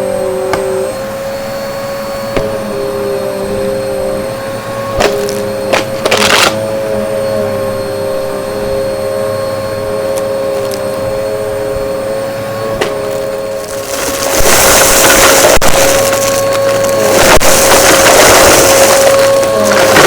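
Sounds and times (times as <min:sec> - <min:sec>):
vacuum cleaner motor whine: 0:00.0 - 0:20.0
debris crackling in vacuum: 0:04.9 - 0:06.6, 0:12.8 - 0:20.0.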